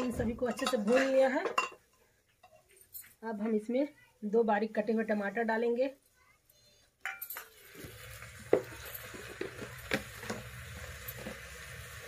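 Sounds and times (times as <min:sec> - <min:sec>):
food sizzling in a pot: 0:07.4 - 0:12.0.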